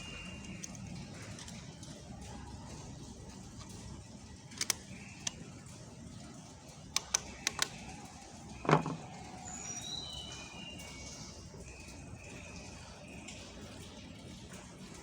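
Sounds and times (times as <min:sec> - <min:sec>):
engine parts and tools clicking: 0:00.0 - 0:09.3
bird chirping: 0:08.5 - 0:11.4.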